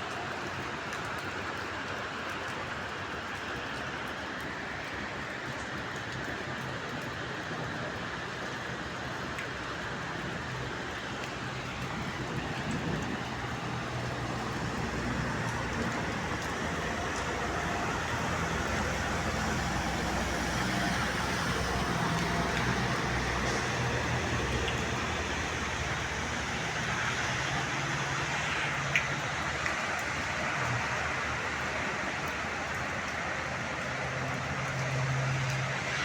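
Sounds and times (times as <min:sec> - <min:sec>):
rain: 0:00.0 - 0:36.0
tyres hissing on wet road: 0:00.0 - 0:36.0
vehicle engines humming: 0:11.4 - 0:36.0.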